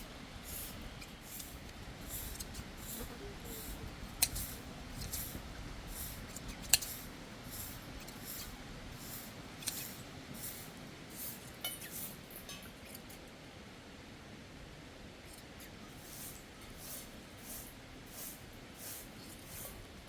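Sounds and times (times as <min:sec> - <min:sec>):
hand shears snipping wool: 0:00.4 - 0:10.6.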